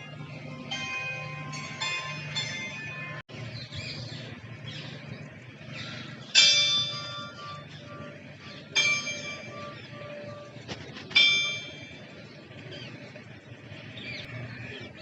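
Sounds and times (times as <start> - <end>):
bell-like chimes: 0.0 - 3.2, 6.3 - 12.3
steady low hum: 0.0 - 15.0.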